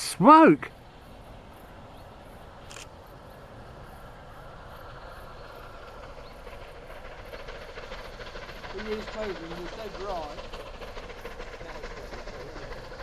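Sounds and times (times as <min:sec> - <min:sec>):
faint outdoor background noise: 0:00.0 - 0:13.0.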